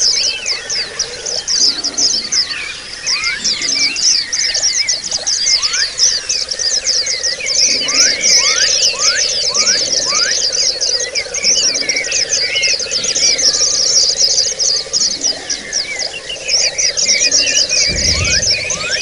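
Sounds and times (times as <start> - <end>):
birds chirping and twittering: 17.6 - 19.0
low rumble: 17.8 - 19.0
steady low hum: 17.8 - 19.0.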